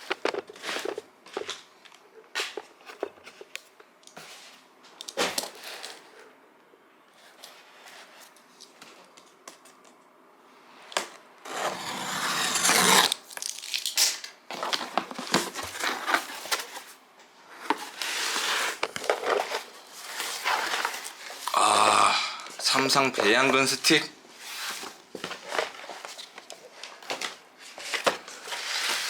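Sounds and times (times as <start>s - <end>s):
packaging tearing and crinkling: 11.5s - 14.8s.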